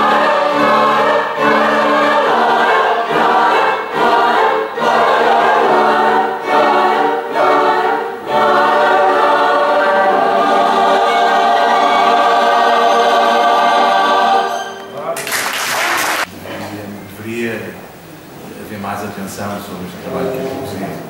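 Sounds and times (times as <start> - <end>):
choir singing: 0.0 - 15.2.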